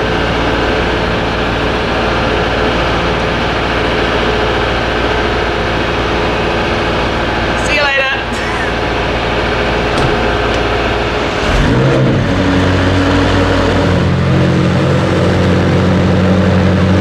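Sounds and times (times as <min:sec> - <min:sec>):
car engine starting and idling: 0:00.0 - 0:17.0
steady low hum: 0:00.0 - 0:17.0.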